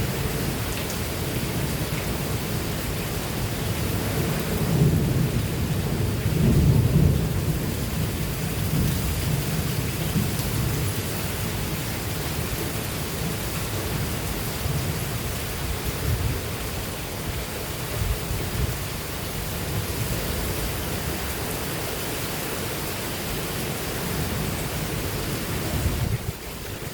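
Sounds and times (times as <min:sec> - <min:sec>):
heavy rain pouring: 0:00.0 - 0:26.9
low rumble of thunder: 0:03.3 - 0:11.5, 0:24.0 - 0:26.4.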